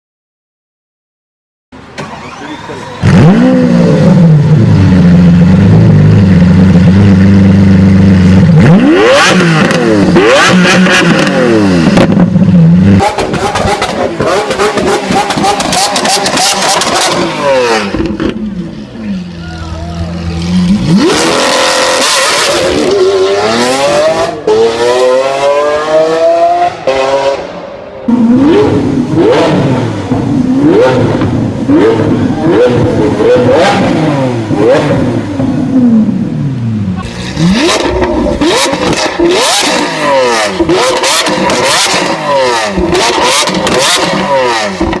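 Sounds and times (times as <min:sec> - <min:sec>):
car engine accelerating hard: 0:02.2 - 0:19.1, 0:19.7 - 0:45.0
exhaust crackles: 0:28.1 - 0:45.0.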